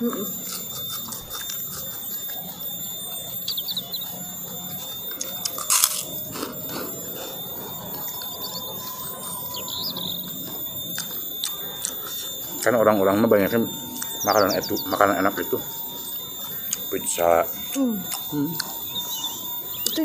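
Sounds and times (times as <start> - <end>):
faint high chirps: 0.0 - 20.0
chewing and mouth clicks: 0.2 - 2.6, 3.5 - 8.9, 10.2 - 12.7, 17.7 - 19.2.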